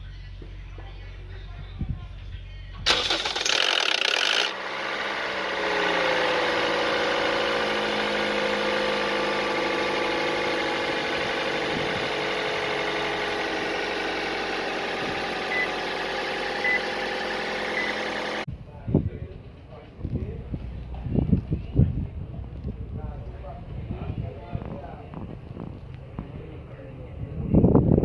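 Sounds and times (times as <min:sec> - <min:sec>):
car engine idling: 0:02.8 - 0:18.5.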